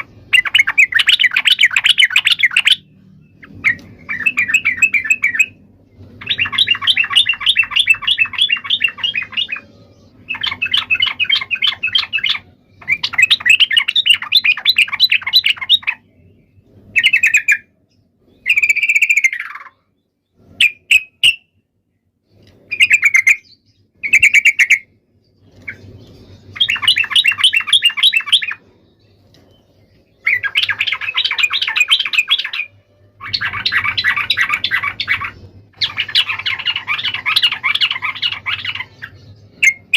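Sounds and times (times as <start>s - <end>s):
bird rolling chatter: 3.4s - 9.6s, 30.2s - 39.8s.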